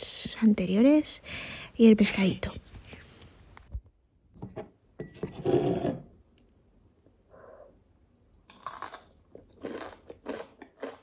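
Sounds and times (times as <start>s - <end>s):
crunchy chewing: 8.4s - 11.0s.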